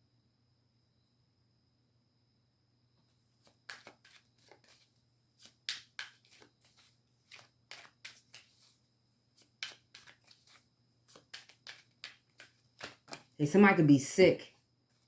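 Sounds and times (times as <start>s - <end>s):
cards being shuffled: 3.4s - 13.4s.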